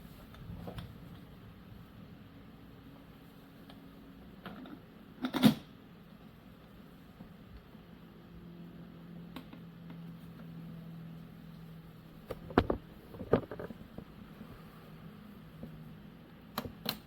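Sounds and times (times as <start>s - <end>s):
faint steady hum: 0.0s - 17.0s
sharp knocks and clicks: 12.3s - 14.1s.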